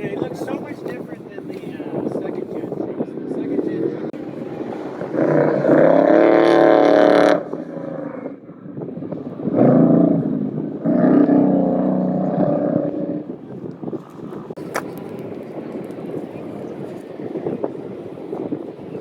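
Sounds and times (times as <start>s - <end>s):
truck engine revving: 3.3s - 14.6s.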